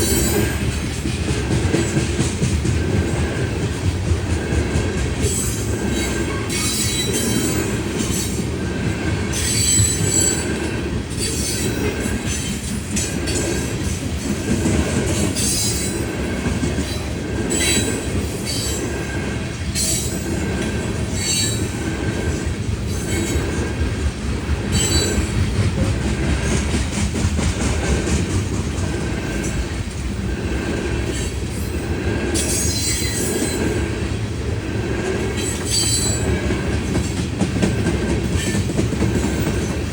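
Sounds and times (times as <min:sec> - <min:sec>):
rail car repeating beat: 0:00.0 - 0:39.9
train wheels rumbling on rail: 0:00.0 - 0:39.9
high wheel squeals: 0:05.3 - 0:08.4, 0:09.3 - 0:10.6, 0:21.1 - 0:21.8, 0:24.7 - 0:25.4, 0:32.4 - 0:33.7, 0:35.4 - 0:36.5.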